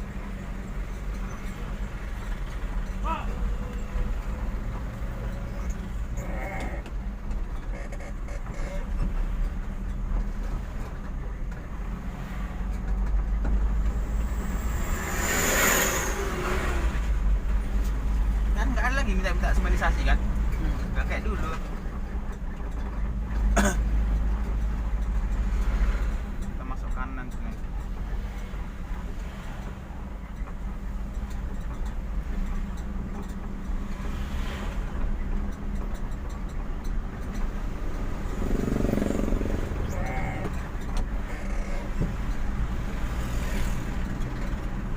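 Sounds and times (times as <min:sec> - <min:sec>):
car engine hum: 0:00.0 - 0:44.9
vehicle rumble from inside cab: 0:00.0 - 0:44.9
small clicks and rattles: 0:19.7 - 0:44.9.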